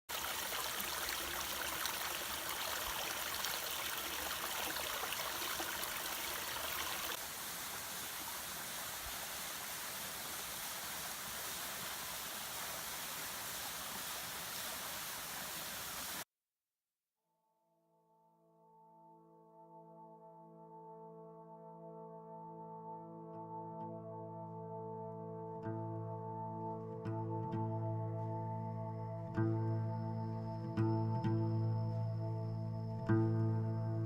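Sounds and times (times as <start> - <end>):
waterfall rushing: 0.1 - 16.2.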